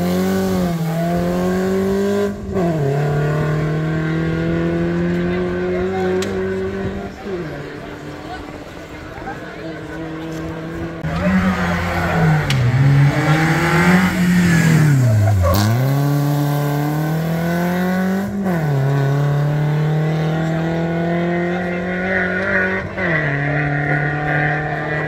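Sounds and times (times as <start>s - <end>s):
rally car engine revving: 0.0s - 25.0s.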